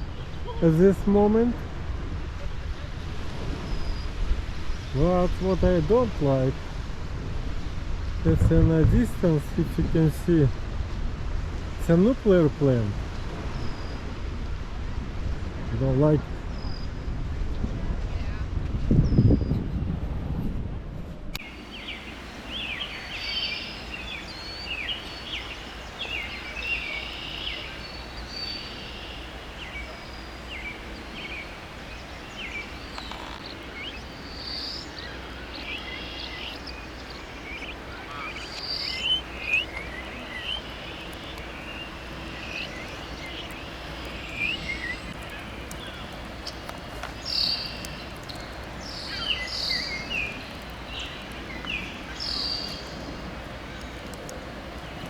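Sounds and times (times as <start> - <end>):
low outdoor rumble: 20.0 - 55.0
faint hum: 21.3 - 55.0
birds chirping: 21.4 - 55.0.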